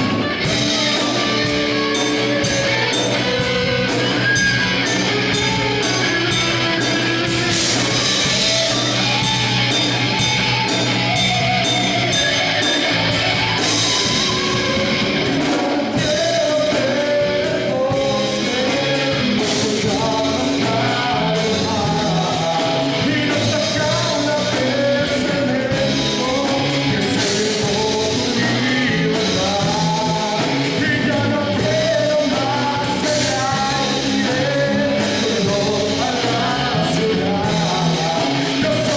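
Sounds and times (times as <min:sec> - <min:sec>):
drum kit: 0:00.0 - 0:38.9
electric guitar: 0:00.0 - 0:38.9
person singing: 0:13.6 - 0:38.9.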